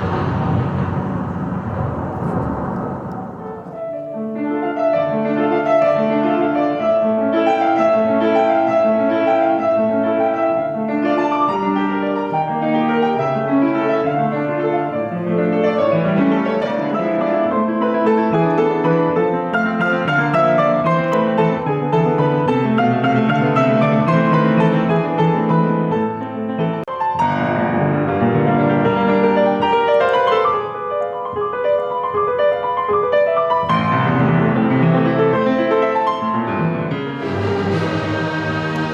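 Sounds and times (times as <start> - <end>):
rush of noise: 0.0 - 4.2, 37.2 - 38.9
classical piano piece: 0.0 - 38.9.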